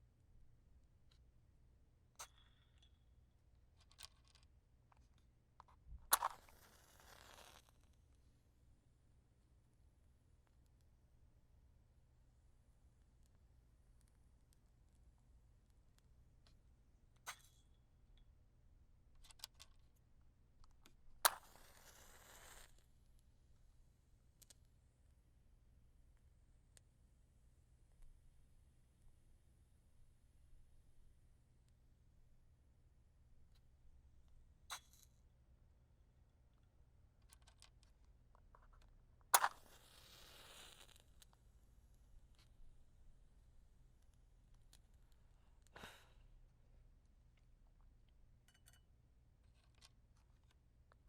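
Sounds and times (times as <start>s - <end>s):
match striking and flaring: 6.1s - 7.7s, 21.3s - 22.7s, 39.4s - 41.2s.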